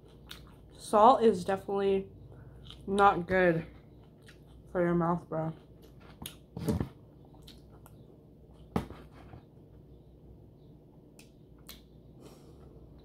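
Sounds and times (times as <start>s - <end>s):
chewing with wet smacks: 0.0s - 0.9s, 2.5s - 4.8s, 7.2s - 8.7s.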